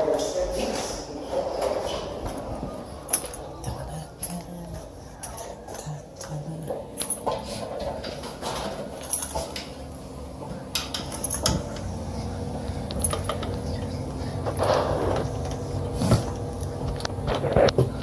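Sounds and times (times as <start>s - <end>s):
steady low hum: 0.0s - 18.0s
metal tools clinking: 3.1s - 3.5s, 7.0s - 9.7s, 10.9s - 11.8s, 12.9s - 13.6s.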